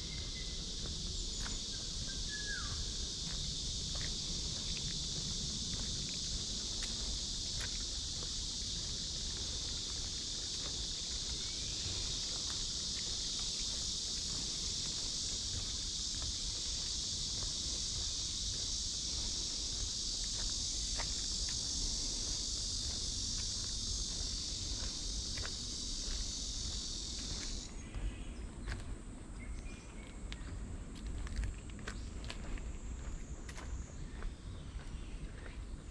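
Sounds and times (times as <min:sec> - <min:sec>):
cicadas buzzing: 0:00.0 - 0:35.9
footsteps ticking: 0:03.0 - 0:27.7, 0:30.4 - 0:33.8.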